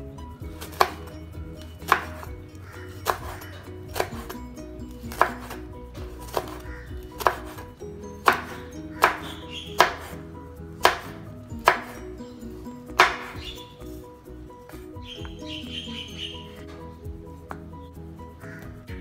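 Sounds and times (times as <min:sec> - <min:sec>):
knife tapping cutting board: 0:07.2 - 0:07.5, 0:08.2 - 0:10.1, 0:10.8 - 0:12.0, 0:13.0 - 0:13.5.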